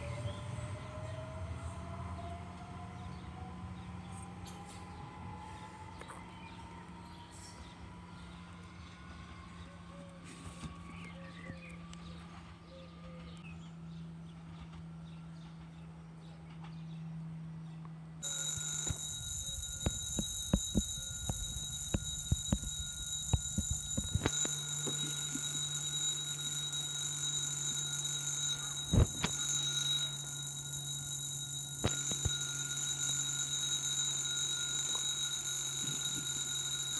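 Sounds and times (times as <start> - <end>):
level crossing warning bell: 18.2 - 36.9.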